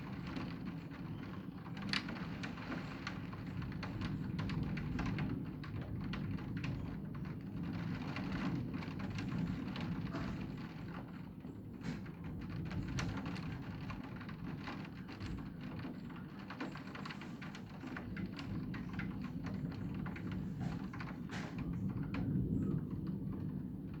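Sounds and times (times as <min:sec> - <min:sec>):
raindrops ticking on hard surface: 0:00.1 - 0:22.3.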